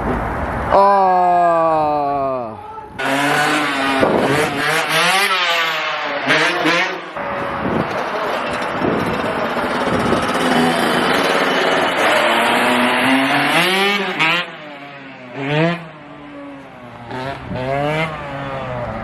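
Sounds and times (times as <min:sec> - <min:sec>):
dirt bike engine revving: 0:03.0 - 0:19.0.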